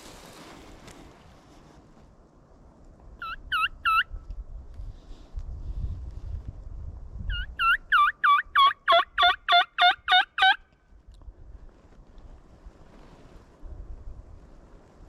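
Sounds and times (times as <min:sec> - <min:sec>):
wind rumbling on microphone: 0:00.0 - 0:08.6, 0:10.9 - 0:15.0
turkey call hen yelps: 0:03.2 - 0:04.1, 0:07.3 - 0:10.6.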